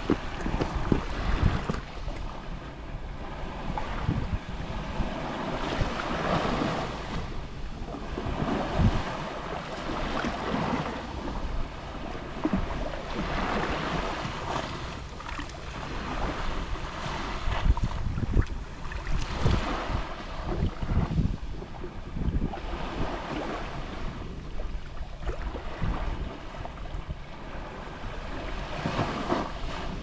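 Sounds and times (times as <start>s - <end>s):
waves lapping on shore: 0.0s - 30.0s
wind rumbling on microphone: 0.0s - 30.0s.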